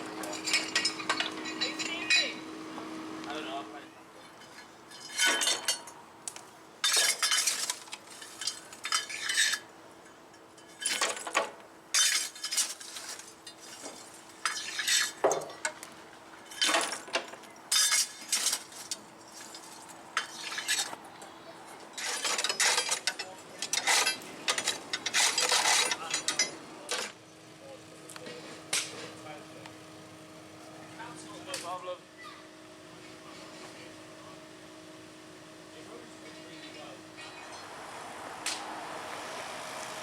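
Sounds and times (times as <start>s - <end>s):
metal clinking and clattering: 0.2s - 2.3s, 4.4s - 6.0s, 6.8s - 15.8s.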